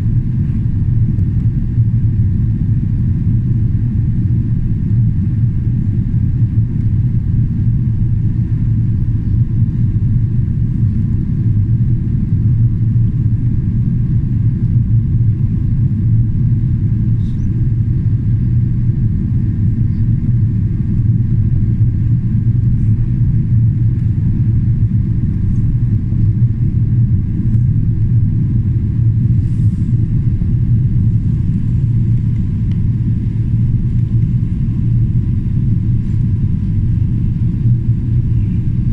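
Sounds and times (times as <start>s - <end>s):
airplane cabin drone: 0.0s - 38.9s.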